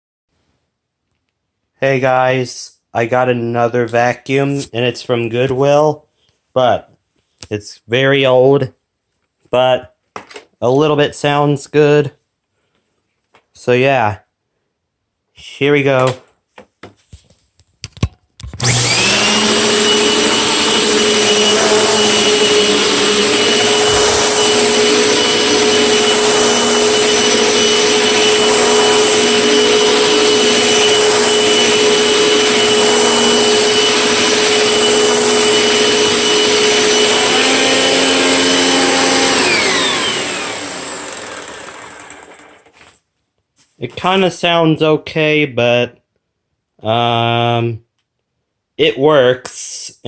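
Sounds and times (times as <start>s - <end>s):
vacuum cleaner whining: 18.6s - 42.9s.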